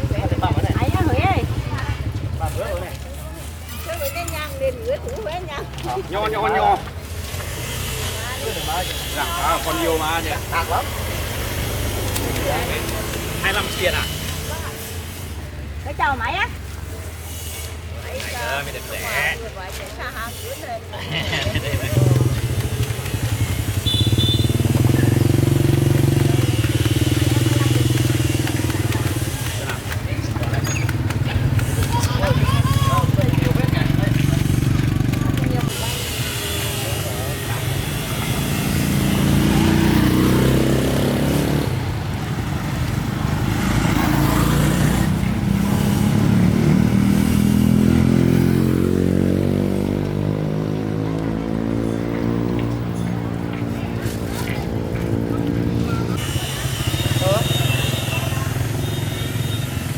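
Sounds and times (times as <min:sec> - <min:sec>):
motorcycle engine running: 0:00.0 - 0:03.2, 0:21.0 - 0:59.9.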